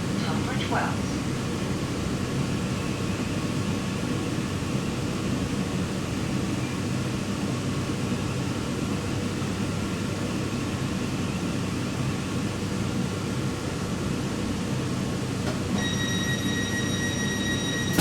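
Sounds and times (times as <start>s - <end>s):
train rumbling: 0.0s - 2.0s.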